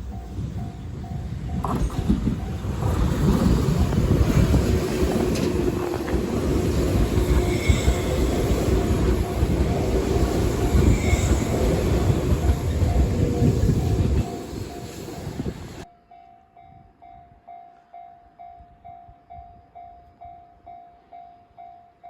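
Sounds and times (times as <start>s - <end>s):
train rumbling past: 0.0s - 15.9s
crossing bell ringing: 0.0s - 22.0s
high wheel squeals: 6.7s - 15.9s.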